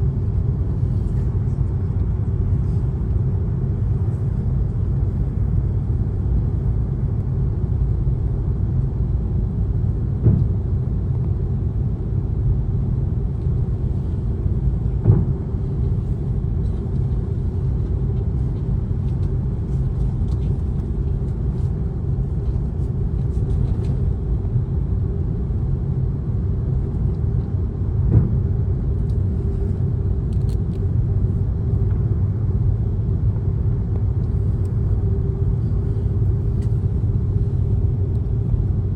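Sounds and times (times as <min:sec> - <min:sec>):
jet engines and airflow rumble: 0:00.0 - 0:38.9
cabin hum: 0:13.0 - 0:25.7, 0:26.3 - 0:38.9.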